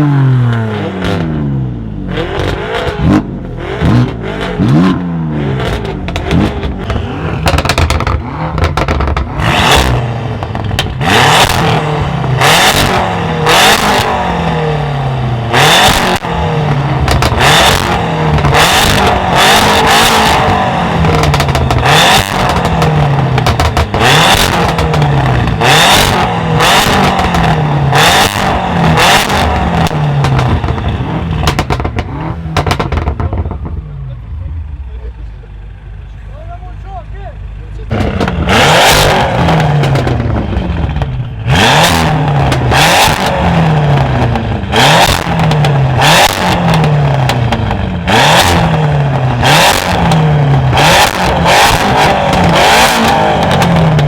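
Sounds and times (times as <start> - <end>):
car engine revving: 0.0 - 54.0
exhaust pops and bangs: 2.3 - 4.2, 5.6 - 13.0, 15.8 - 33.9, 37.9 - 54.0.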